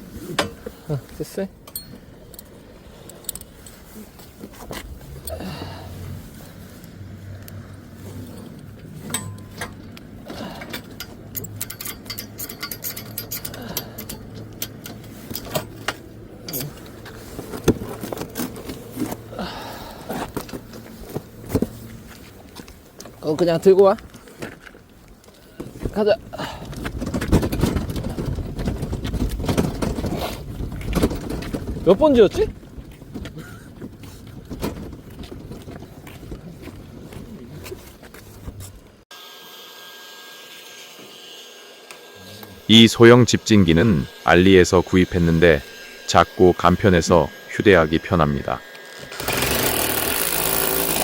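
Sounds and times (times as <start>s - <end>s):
knocks of gear being carried: 24.0s - 39.0s
small electric motor whirring: 43.4s - 47.6s, 48.6s - 51.0s.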